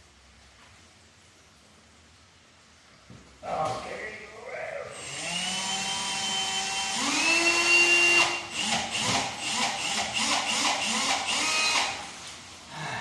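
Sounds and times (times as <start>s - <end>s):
electric drill whining: 5.0s - 12.1s.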